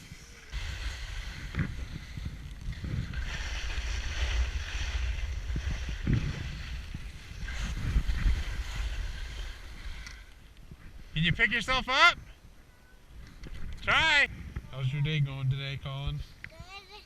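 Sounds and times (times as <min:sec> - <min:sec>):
steady hiss: 0:00.0 - 0:11.6
wind buffeting microphone: 0:00.0 - 0:16.4.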